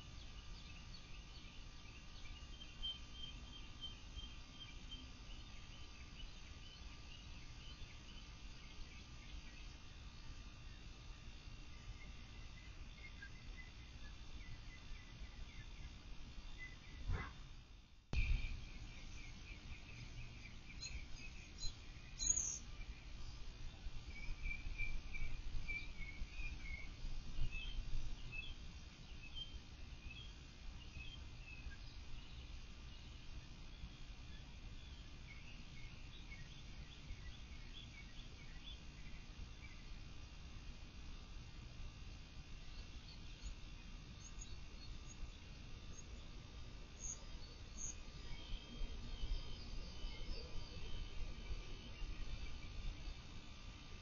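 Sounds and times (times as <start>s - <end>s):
faint bird chirps: 0.0s - 17.5s, 18.2s - 40.0s, 41.1s - 54.0s
low outdoor rumble: 0.0s - 54.0s
loud high bird chirp: 18.2s - 22.8s.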